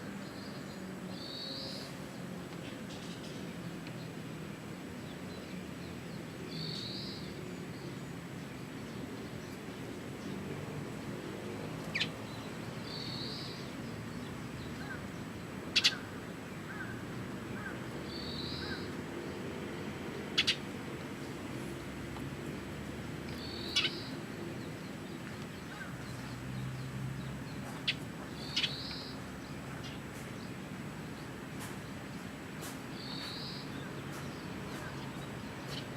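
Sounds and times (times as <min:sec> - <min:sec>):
bird calling: 0:15.7 - 0:19.0, 0:20.3 - 0:20.7, 0:23.3 - 0:24.3, 0:27.8 - 0:29.2.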